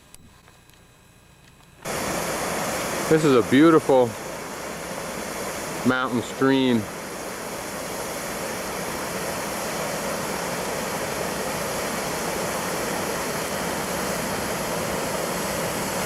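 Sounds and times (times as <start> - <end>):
stream rushing over rock: 1.9 - 7.6.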